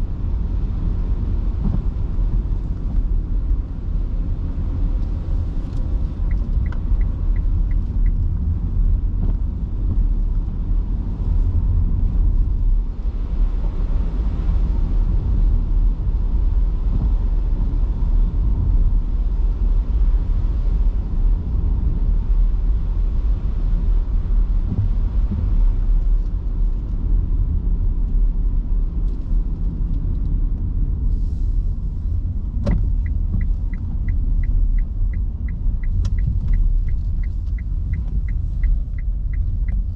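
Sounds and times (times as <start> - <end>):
road and tyre rumble: 0.0 - 39.9
turn signal ticking: 5.0 - 10.4, 32.0 - 39.9.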